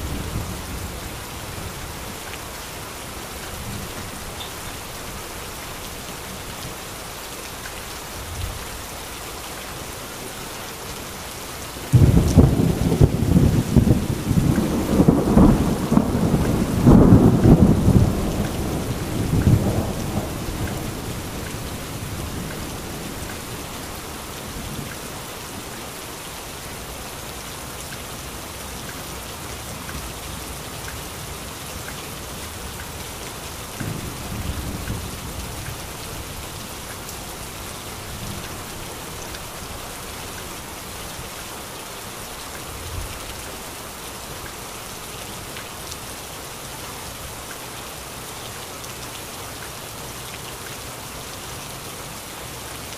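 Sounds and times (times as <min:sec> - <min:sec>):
heavy rain falling: 0:00.0 - 0:52.9
distant thunder rumbling: 0:11.9 - 0:23.2.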